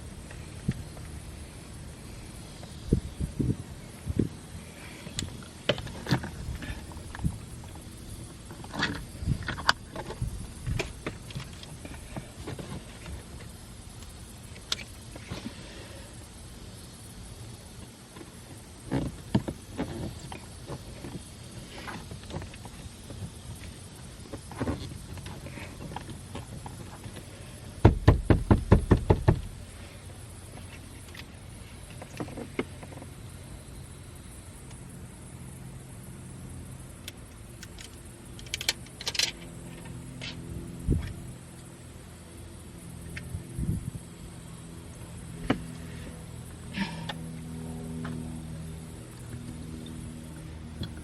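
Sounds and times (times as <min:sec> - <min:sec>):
sharp plastic knocks: 0:27.8 - 0:29.5.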